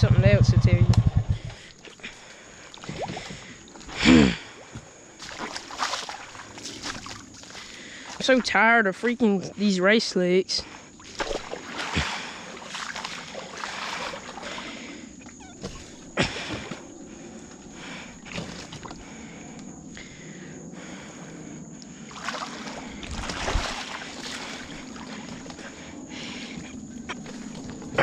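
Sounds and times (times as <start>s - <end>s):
atv engine running: 0.0s - 1.9s
mud and water sloshing: 1.3s - 9.4s, 10.6s - 20.2s, 21.9s - 28.0s.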